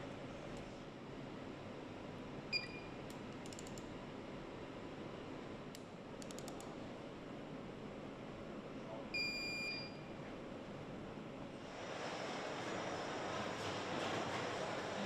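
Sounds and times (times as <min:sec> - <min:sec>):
factory floor noise: 0:11.6 - 0:15.0.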